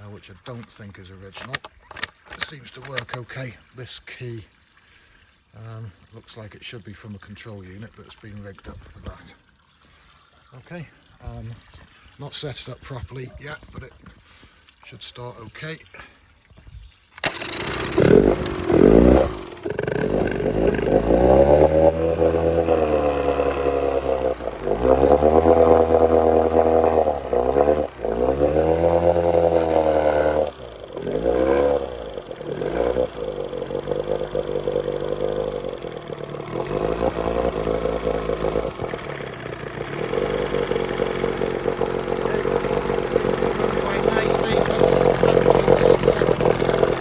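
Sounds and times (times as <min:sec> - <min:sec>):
outboard motor revving: 0:00.0 - 0:03.4, 0:17.2 - 0:47.0.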